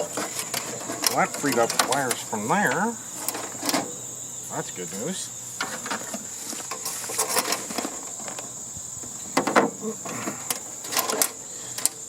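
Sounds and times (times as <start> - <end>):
tools and metal parts clicking: 0.0 - 3.9, 10.4 - 12.0
crickets trilling: 0.0 - 12.0.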